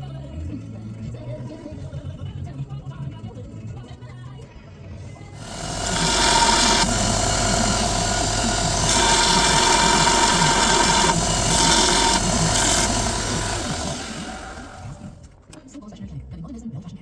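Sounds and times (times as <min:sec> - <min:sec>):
electric power tool grinding metal: 0:05.4 - 0:15.2.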